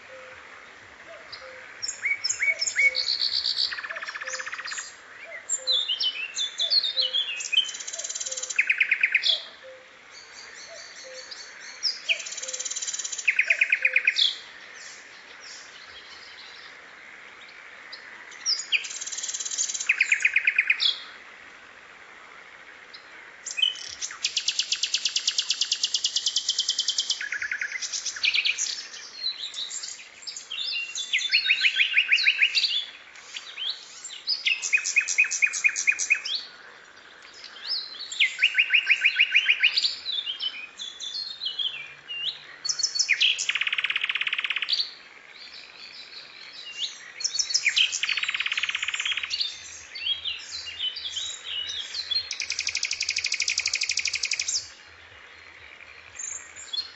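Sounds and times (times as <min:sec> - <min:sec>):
sharp bird chirps: 0:46.8 - 0:54.7.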